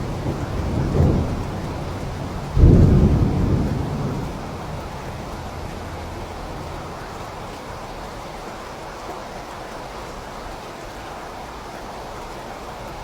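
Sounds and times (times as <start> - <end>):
thunder rumble: 0.0 - 8.1
steady rain falling: 0.0 - 13.0.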